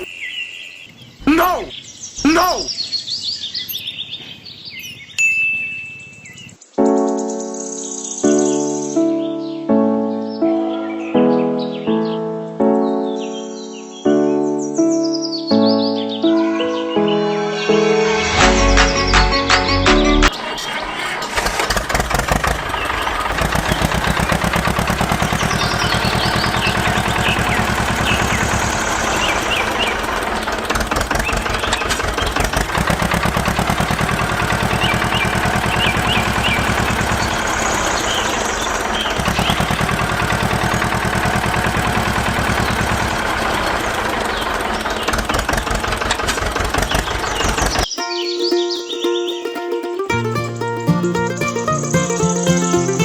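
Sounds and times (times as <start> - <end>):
small tractor engine droning: 20.4 - 53.0.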